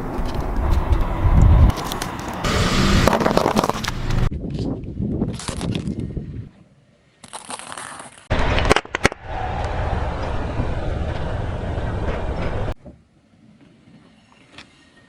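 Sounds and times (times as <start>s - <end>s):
car rolling rumble: 0.0s - 4.3s, 8.3s - 13.0s.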